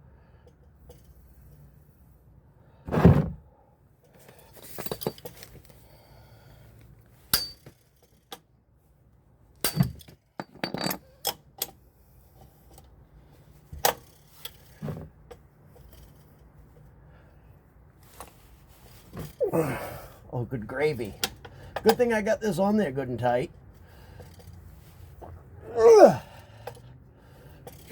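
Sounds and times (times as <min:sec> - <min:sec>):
heavy thump: 0:02.9 - 0:03.4.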